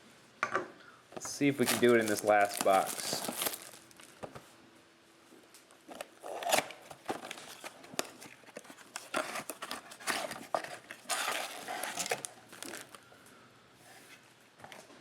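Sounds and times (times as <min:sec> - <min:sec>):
wrappers crinkling and tearing: 0:01.4 - 0:04.2, 0:05.9 - 0:13.0.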